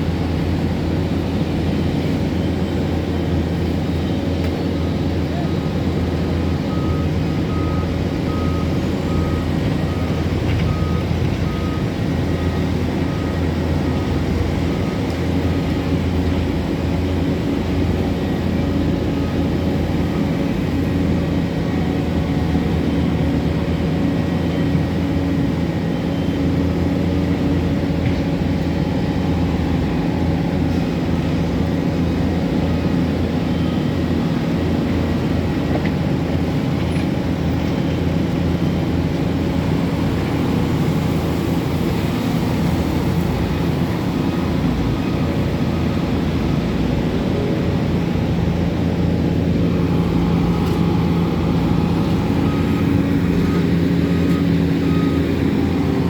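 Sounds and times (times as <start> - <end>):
diesel machinery running: 0.0 - 56.0
reversing alarm beeping: 5.6 - 15.8, 28.6 - 34.8, 48.8 - 56.0.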